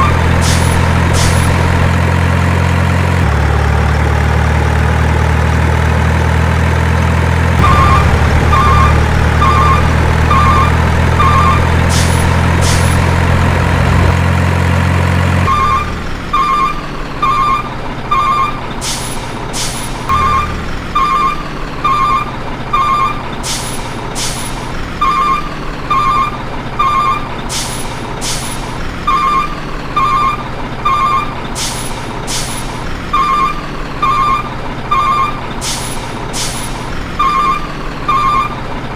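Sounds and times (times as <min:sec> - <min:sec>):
reversing alarm beeping: 0:00.0 - 0:01.5, 0:07.6 - 0:13.1, 0:15.5 - 0:18.6, 0:20.1 - 0:23.2, 0:24.9 - 0:27.5, 0:29.0 - 0:31.4, 0:33.0 - 0:36.0, 0:36.6 - 0:38.6
heavy truck engine humming: 0:00.0 - 0:38.9
air brake hisses: 0:18.8 - 0:20.0, 0:23.5 - 0:24.6, 0:27.5 - 0:28.6, 0:31.6 - 0:32.7, 0:35.6 - 0:36.8.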